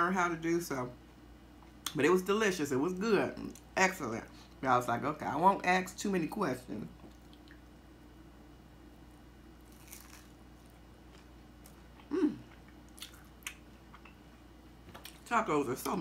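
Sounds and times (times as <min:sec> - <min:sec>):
person chewing crunchy taco: 0:09.6 - 0:14.2.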